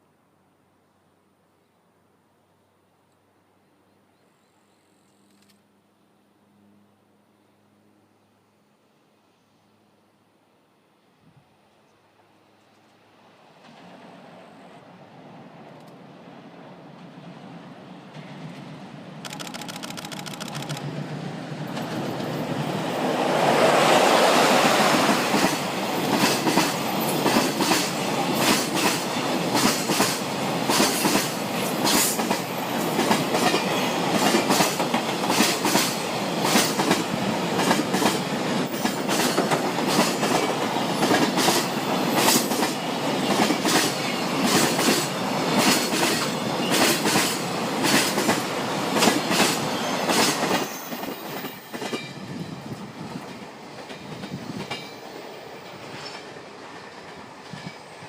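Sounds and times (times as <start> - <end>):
electric locomotive passing: 11.8 - 58.0.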